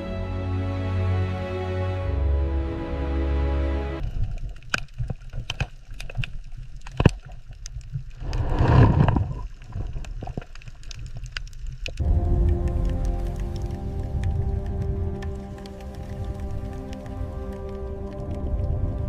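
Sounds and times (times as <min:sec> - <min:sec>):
background music: 0:00.0 - 0:04.0, 0:12.0 - 0:19.0
water clicks and pops: 0:04.0 - 0:19.0
water gurgling: 0:04.0 - 0:19.0.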